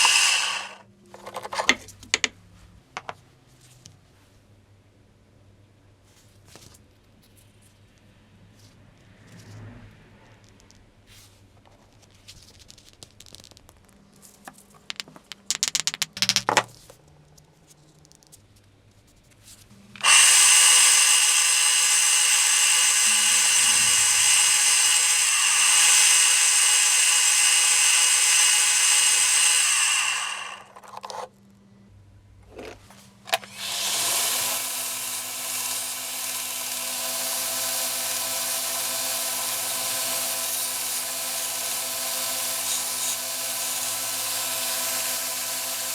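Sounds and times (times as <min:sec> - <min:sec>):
power tool high-pitched whine: 0:00.0 - 0:00.8, 0:20.0 - 0:30.7, 0:33.5 - 0:45.9
tool handling clicks: 0:32.6 - 0:33.6.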